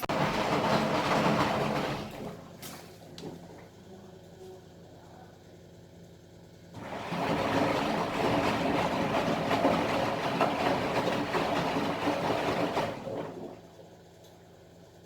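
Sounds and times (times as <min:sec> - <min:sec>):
washing machine drum turning: 0:00.0 - 0:03.6, 0:06.8 - 0:13.6
wet washload sloshing and rattling: 0:00.0 - 0:03.8, 0:06.8 - 0:13.9.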